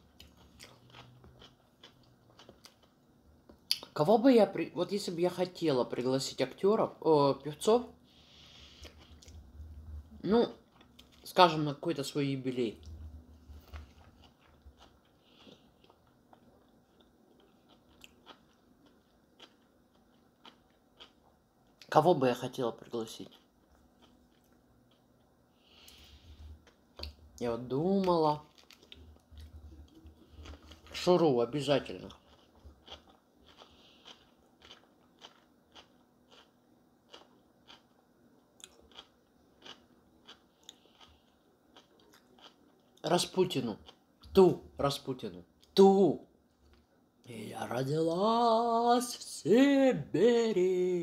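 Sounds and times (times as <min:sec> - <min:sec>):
faint chewing with soft clicks: 0:00.0 - 0:04.0, 0:08.6 - 0:09.8, 0:10.5 - 0:11.3, 0:12.8 - 0:22.0, 0:22.8 - 0:44.4, 0:46.4 - 0:47.3.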